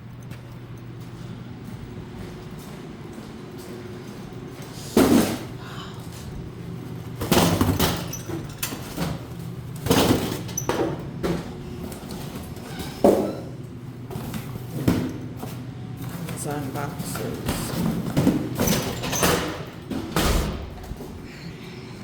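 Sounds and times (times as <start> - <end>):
steady low hum: 0.0 - 22.0
boxes and bins thumping: 17.1 - 21.1.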